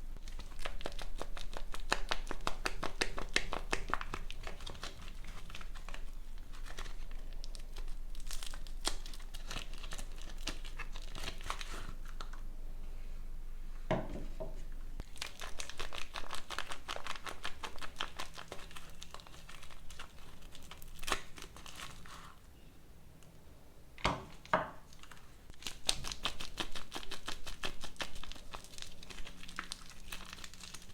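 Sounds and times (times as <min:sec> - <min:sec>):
soap packaging crinkling and tearing: 0:00.1 - 0:12.4, 0:15.0 - 0:22.4, 0:24.4 - 0:30.9
soft knock: 0:13.9 - 0:14.6.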